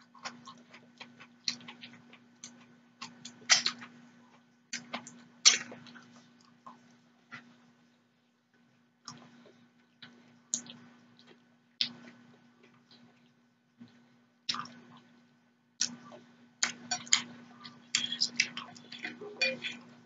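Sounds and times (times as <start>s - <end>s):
faint steady hum: 0.0s - 20.0s
chewing and wet mouth smacks: 9.0s - 19.8s.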